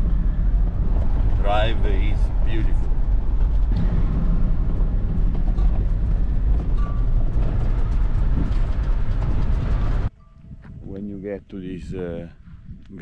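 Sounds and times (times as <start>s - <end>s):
car engine and tyre rumble: 0.0s - 10.1s.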